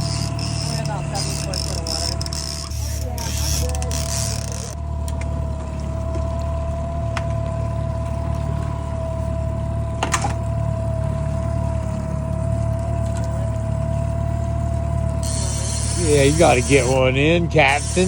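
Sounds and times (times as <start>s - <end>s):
boat engine humming with whine: 0.0s - 18.0s
water washing around boat: 0.0s - 18.0s.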